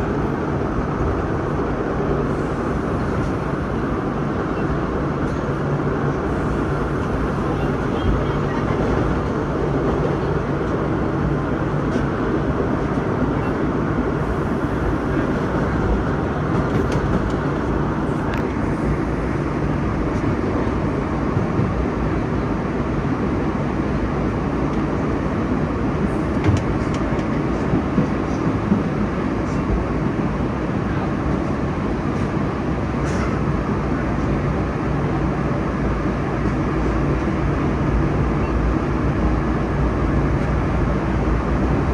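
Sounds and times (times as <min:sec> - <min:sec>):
train wheels rumbling on rail: 0:00.0 - 0:41.9
sharp clicks of train: 0:05.2 - 0:10.8, 0:14.3 - 0:19.4, 0:26.0 - 0:33.8.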